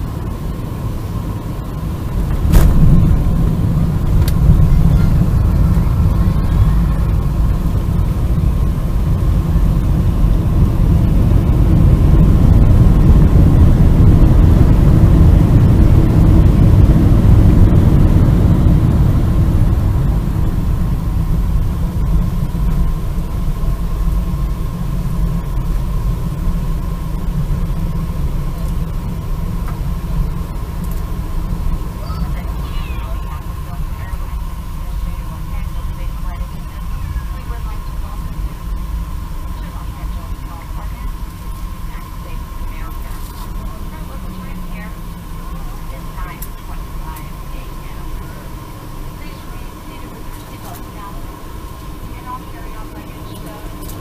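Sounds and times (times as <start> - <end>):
low jet rumble: 0.0 - 54.0
jet touchdown thump: 2.1 - 5.8.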